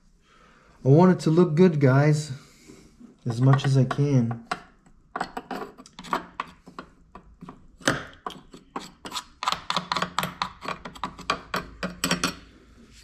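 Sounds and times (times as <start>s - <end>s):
tool scraping and clicking: 5.2s - 12.4s.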